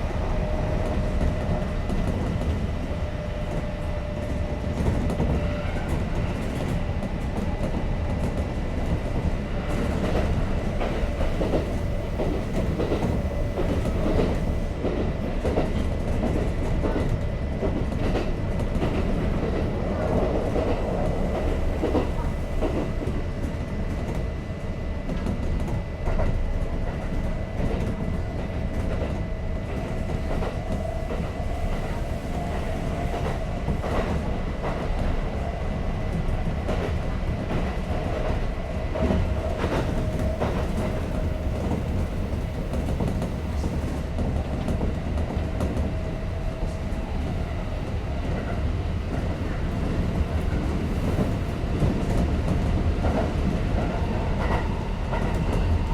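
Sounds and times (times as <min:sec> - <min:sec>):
train running hum: 0:00.0 - 0:55.9
train wheels rumbling on rail: 0:00.0 - 0:55.9.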